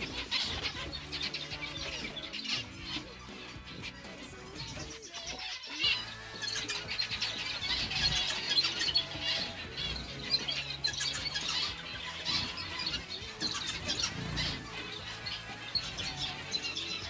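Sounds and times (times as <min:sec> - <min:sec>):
small birds chirping: 0:00.0 - 0:17.0
wing flutters: 0:05.7 - 0:17.0.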